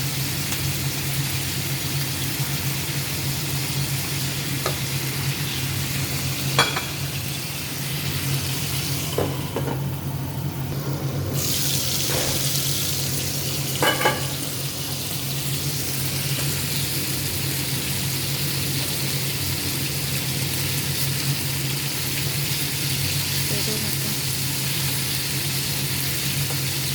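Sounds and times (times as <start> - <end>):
meat sizzling in oil: 0.0 - 26.9
utensils clinking on pan: 6.6 - 7.0, 13.8 - 14.5.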